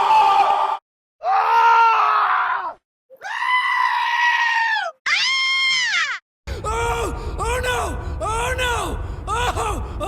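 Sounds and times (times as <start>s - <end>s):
cartoon character screaming: 0.0s - 6.2s.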